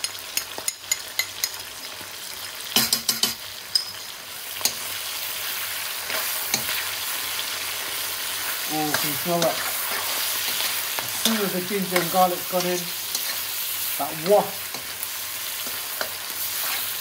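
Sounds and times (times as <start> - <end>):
vegetables sizzling in hot oil: 0.0 - 17.0
metal spoon scraping a pan: 4.6 - 6.9, 8.4 - 17.0.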